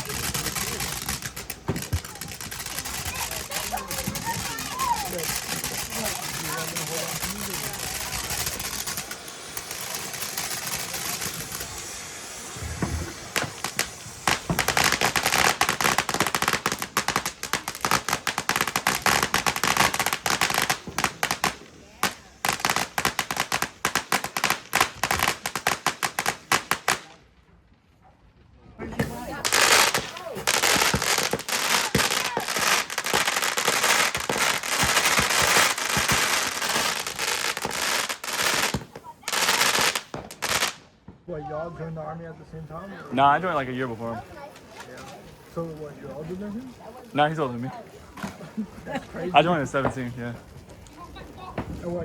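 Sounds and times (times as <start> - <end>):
firecrackers crackling bangs: 0.0 - 27.3, 28.8 - 41.2, 49.4 - 52.0
low firework thump: 0.6 - 2.2, 12.5 - 15.0.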